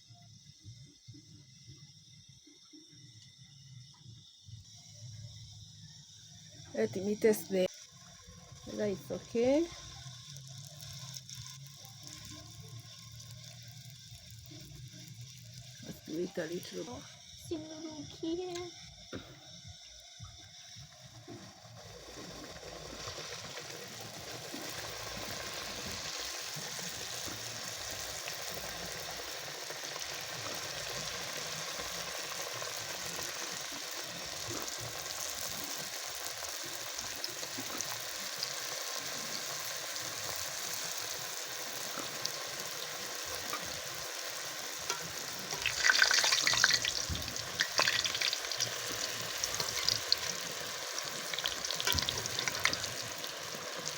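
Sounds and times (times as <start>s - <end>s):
dough sizzling in oil: 0.0s - 53.9s
oil crackling: 21.2s - 53.9s.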